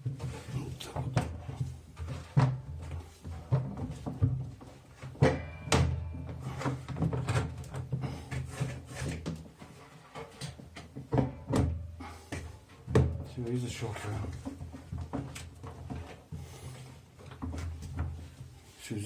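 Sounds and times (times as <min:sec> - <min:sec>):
washing machine drum scraping: 0:00.2 - 0:10.4
washing machine drum knocking: 0:03.5 - 0:07.9, 0:12.8 - 0:13.4.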